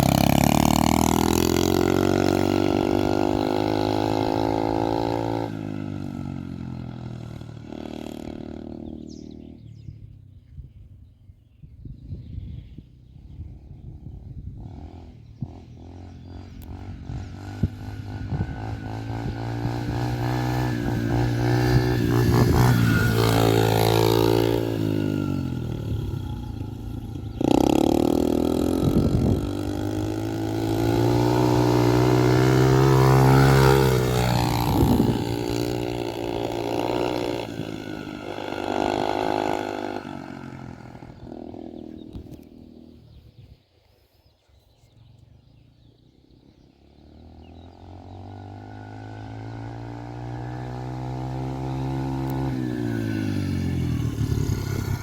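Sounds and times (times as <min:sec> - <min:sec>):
motocross bike engine revving: 0:00.0 - 0:09.6, 0:14.6 - 0:43.1, 0:46.9 - 0:55.0.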